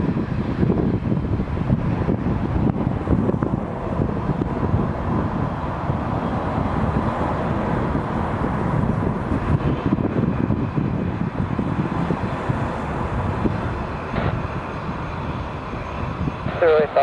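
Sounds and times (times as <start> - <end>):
jet engines rumbling: 0.0 - 17.0
wind buffeting microphone: 0.0 - 17.0.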